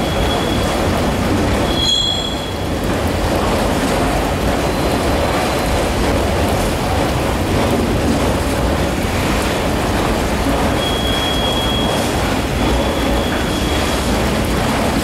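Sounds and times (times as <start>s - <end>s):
rainfall: 0.0s - 15.0s
high wheel squeal: 1.6s - 2.6s, 10.8s - 12.0s.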